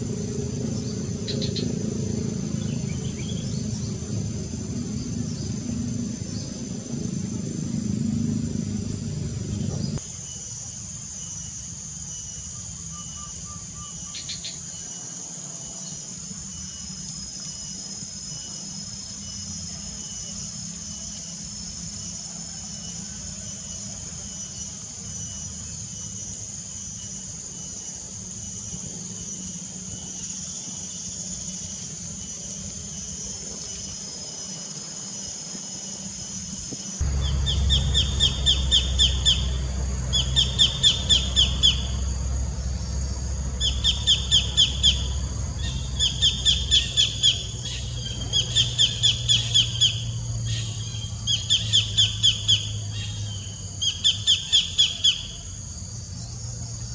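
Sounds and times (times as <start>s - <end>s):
low rumble: 0.0s - 10.0s, 37.0s - 46.0s
insect chorus: 0.0s - 56.9s.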